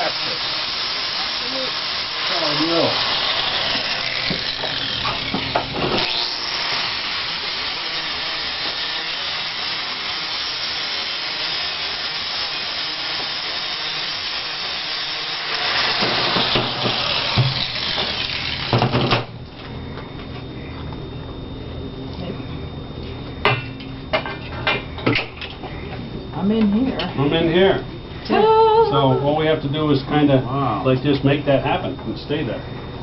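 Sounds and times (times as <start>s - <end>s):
power grinder polishing steel: 0.0s - 18.8s.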